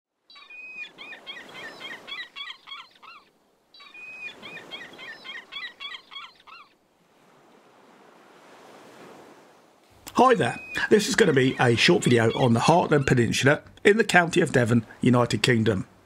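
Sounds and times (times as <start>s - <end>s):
wind: 0.1s - 16.0s
bird calling: 0.3s - 6.8s, 9.9s - 15.0s
sea waves: 0.3s - 16.0s.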